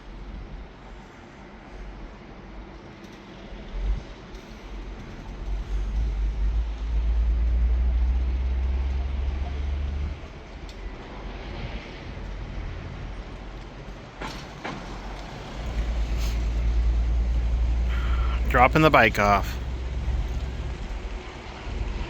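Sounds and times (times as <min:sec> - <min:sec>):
vehicle rumble: 0:03.7 - 0:22.0
passing vehicle hiss: 0:14.2 - 0:22.0.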